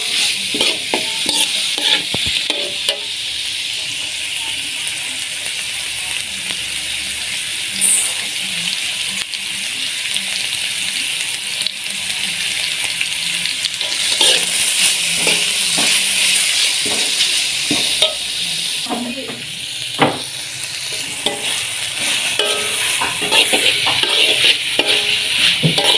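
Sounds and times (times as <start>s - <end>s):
spatula scraping pan: 0.0s - 3.1s, 13.8s - 18.3s, 20.9s - 25.9s
food sizzling in a pan: 0.0s - 25.9s.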